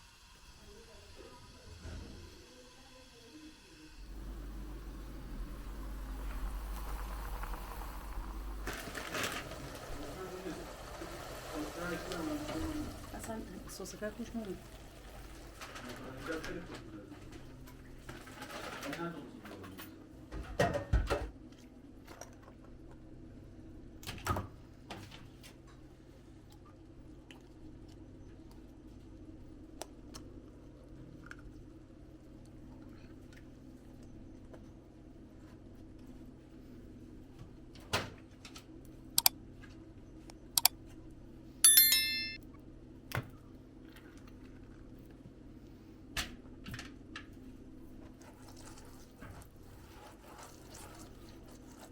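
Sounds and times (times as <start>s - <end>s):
metal utensils clinking: 41.6s - 42.4s
struck metal ringing: 41.6s - 42.4s.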